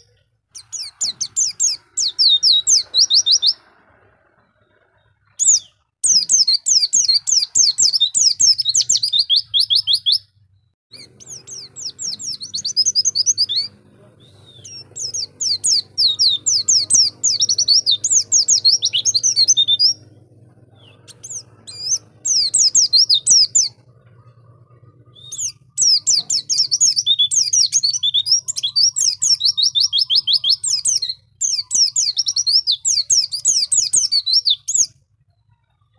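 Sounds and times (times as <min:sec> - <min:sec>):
bird singing high chattering trills: 0:00.0 - 0:35.9
faint low hum: 0:10.2 - 0:35.9.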